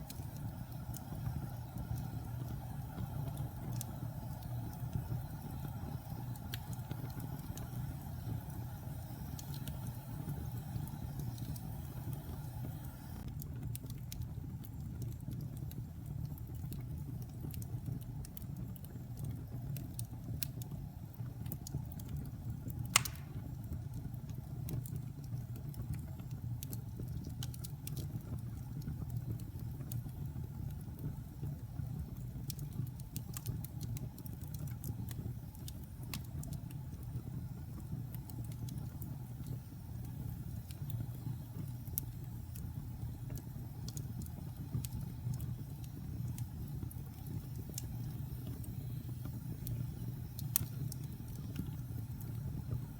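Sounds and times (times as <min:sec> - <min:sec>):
fire burning in a fireplace: 0:00.0 - 0:52.9
fire crackling: 0:00.0 - 0:52.9
sharp pop from fire: 0:22.8 - 0:23.6.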